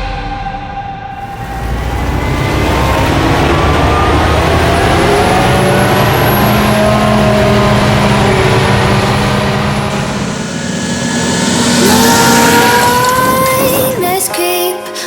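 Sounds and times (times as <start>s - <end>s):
diesel engine running: 1.1s - 14.4s
thin high whine: 1.1s - 14.5s.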